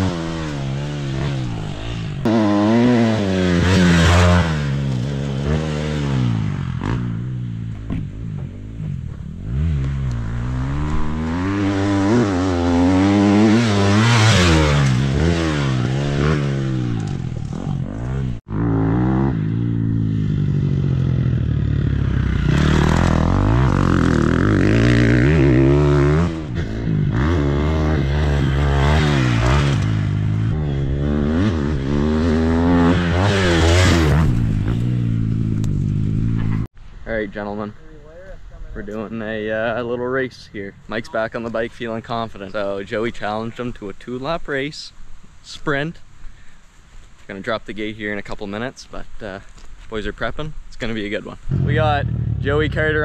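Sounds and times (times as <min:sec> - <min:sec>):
dirt bike engine revving: 0:00.0 - 0:36.7, 0:51.5 - 0:53.0.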